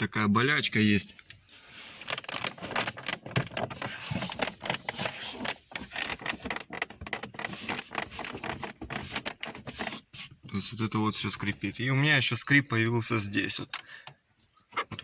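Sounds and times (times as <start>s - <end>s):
plastic dashboard creaking and clicking: 2.0s - 10.6s, 13.5s - 15.0s.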